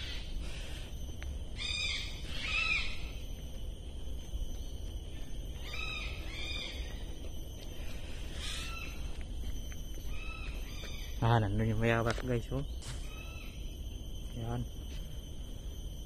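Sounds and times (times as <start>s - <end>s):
steady low rumble: 0.0s - 16.0s
bird calling harshly: 1.6s - 3.1s, 8.4s - 9.1s.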